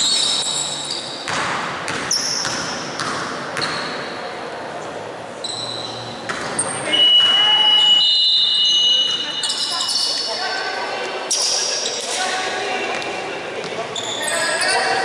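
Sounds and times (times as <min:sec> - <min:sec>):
sneakers squeaking: 0:00.0 - 0:04.4, 0:05.4 - 0:15.0
basketball bouncing on hardwood floor: 0:01.3 - 0:03.8
murmur of voices: 0:03.4 - 0:15.0.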